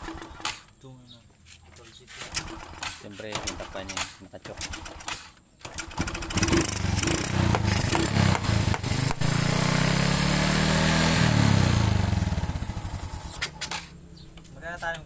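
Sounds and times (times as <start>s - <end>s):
motorcycle engine revving: 5.6s - 14.4s.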